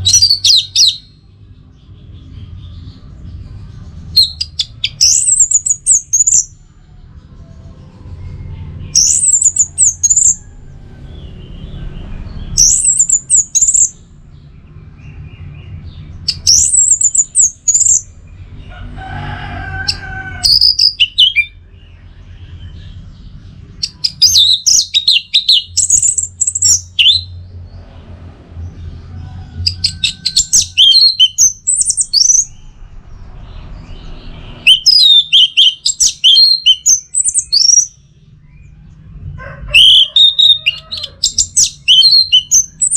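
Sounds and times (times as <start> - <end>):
thrush singing: 2.1 - 14.4.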